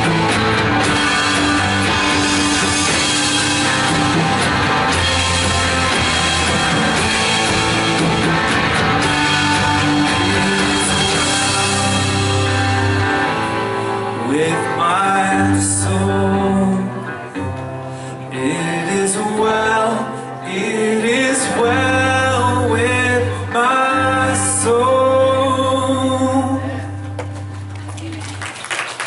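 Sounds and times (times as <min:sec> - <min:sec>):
worship band playing: 0:00.0 - 0:29.0
man singing: 0:09.0 - 0:27.2.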